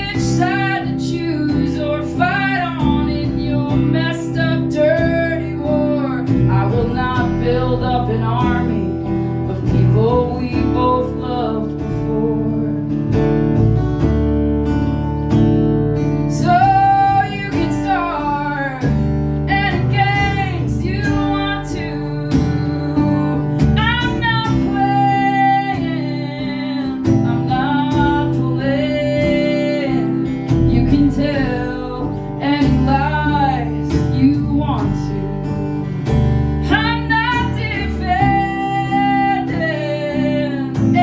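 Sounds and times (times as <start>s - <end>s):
woman singing: 0.0s - 13.8s, 16.0s - 41.0s
acoustic guitar chords: 0.0s - 41.0s.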